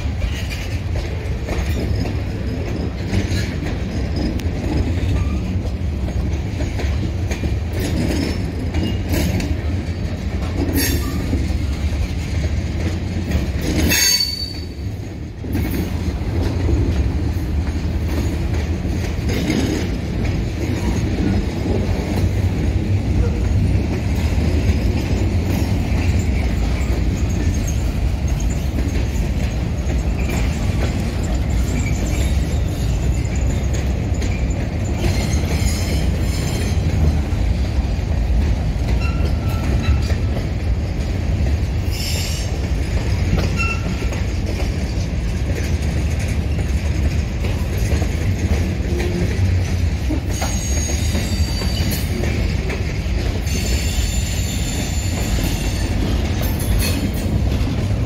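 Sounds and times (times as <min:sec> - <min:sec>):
freight train rumbling on rails: 0:00.0 - 0:58.0
high wheel squeals: 0:13.9 - 0:14.9, 0:50.4 - 0:52.1.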